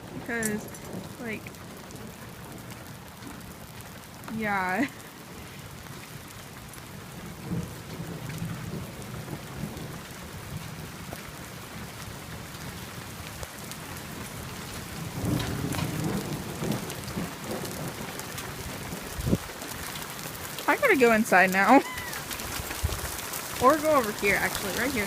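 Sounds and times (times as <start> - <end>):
thunder rumbling: 0.0 - 5.2, 6.9 - 12.3, 13.8 - 25.0
raindrops hitting near microphone: 0.0 - 25.0
steady rain falling: 0.0 - 25.0.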